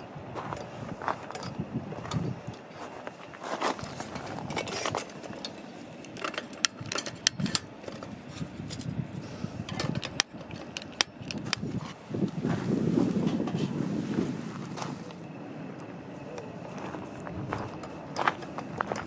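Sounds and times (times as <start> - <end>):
gear rustling: 0.4 - 15.1
sharp clicks and knocks: 9.7 - 11.6.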